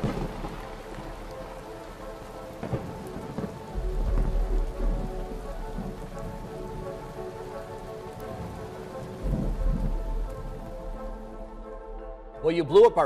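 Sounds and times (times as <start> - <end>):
thunder-like rumbling booms: 0.0 - 1.4, 2.6 - 6.9, 8.4 - 11.4
rain-like hiss: 0.0 - 13.0.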